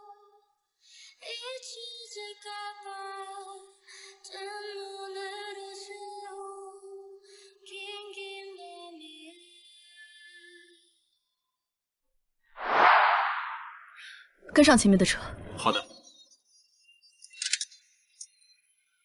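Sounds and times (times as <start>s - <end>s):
woman singing slow song: 0.0s - 0.4s, 1.0s - 10.8s.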